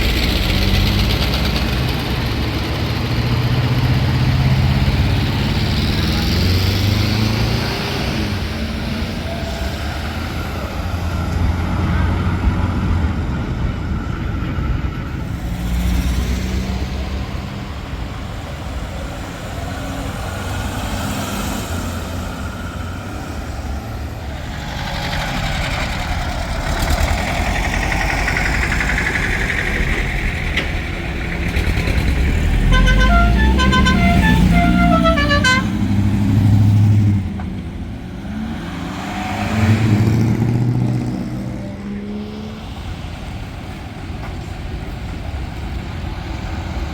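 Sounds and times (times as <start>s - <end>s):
vehicles driving past: 0.0s - 46.9s
multi-note horn: 32.5s - 36.1s.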